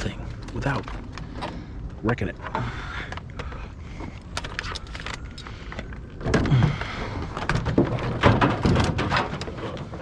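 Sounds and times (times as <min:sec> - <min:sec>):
objects knocking and thumping: 0:06.2 - 0:10.0.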